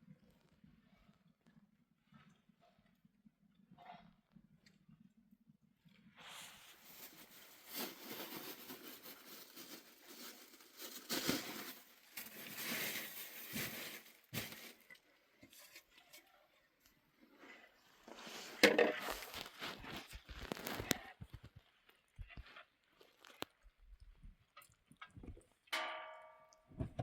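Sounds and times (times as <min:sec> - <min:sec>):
rustling and crinkling: 0:06.2 - 0:25.5.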